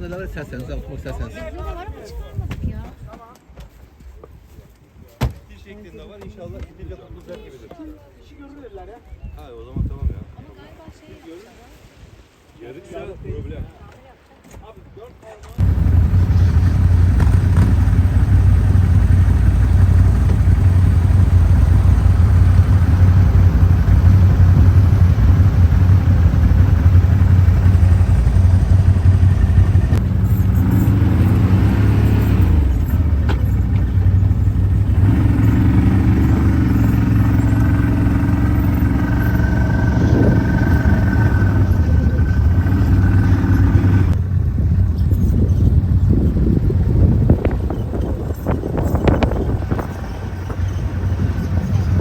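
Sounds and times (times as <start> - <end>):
higher engine note rising and falling: 15.6 - 44.2
off-road vehicle engine droning: 15.6 - 52.0.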